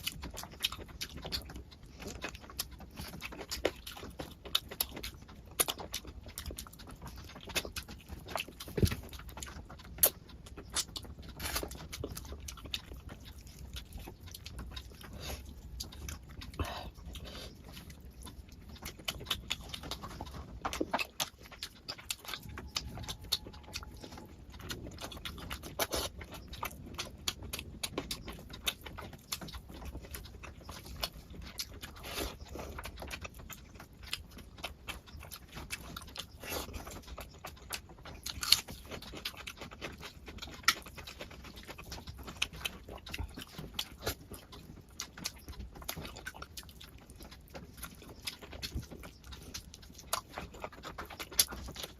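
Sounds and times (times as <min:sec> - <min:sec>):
wet chewing and lip-smacking: 0:00.0 - 0:51.9.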